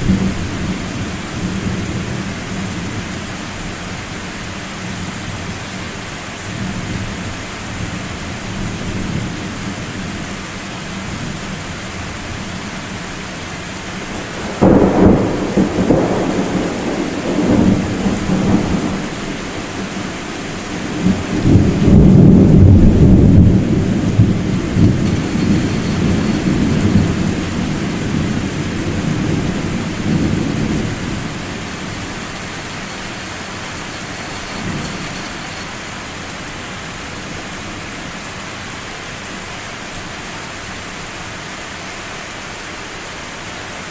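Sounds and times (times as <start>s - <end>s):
steady rain: 0.0s - 43.9s
thunder rumbling: 13.6s - 35.6s.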